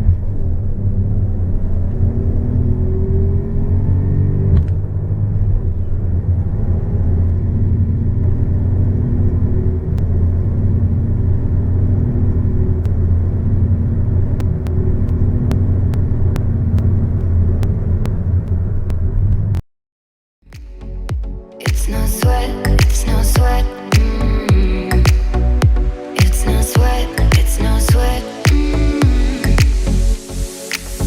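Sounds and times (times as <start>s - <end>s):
car engine accelerating: 0.0s - 19.6s.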